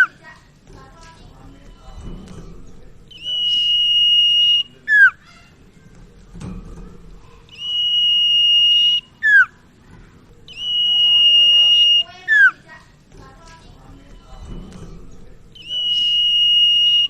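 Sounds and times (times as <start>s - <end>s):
bird singing high whistles: 3.1s - 5.3s, 7.5s - 9.6s, 10.5s - 12.6s, 15.6s - 17.0s.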